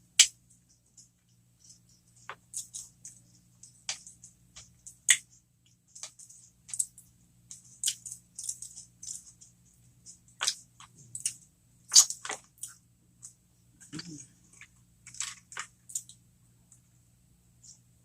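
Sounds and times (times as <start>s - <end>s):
crunchy chewing: 1.0s - 5.3s, 5.9s - 16.2s.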